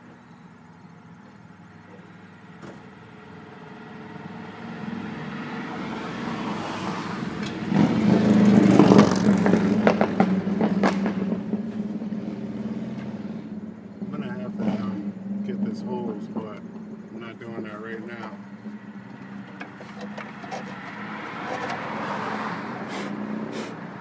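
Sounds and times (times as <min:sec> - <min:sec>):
car engine passing by: 0:03.3 - 0:24.0
sharp clicks and knocks: 0:19.1 - 0:22.0.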